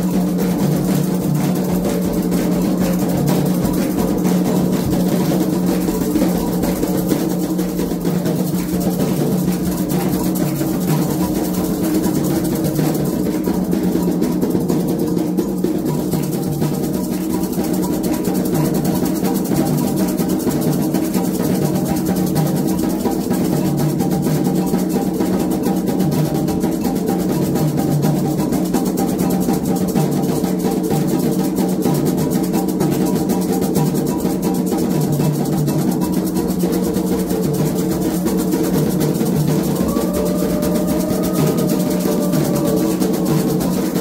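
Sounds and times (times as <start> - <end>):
hand drums playing fast rhythm: 0.0 - 44.0.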